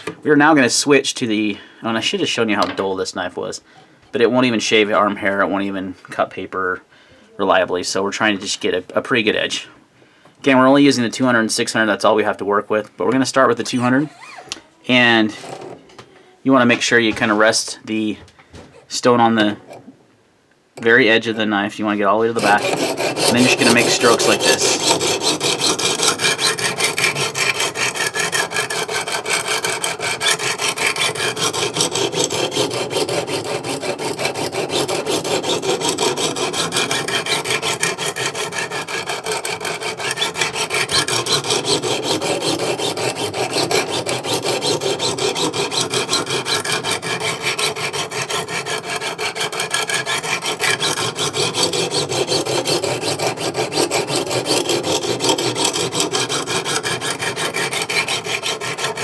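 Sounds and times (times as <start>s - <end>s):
sharpening stone rasping on knife: 22.4s - 59.0s.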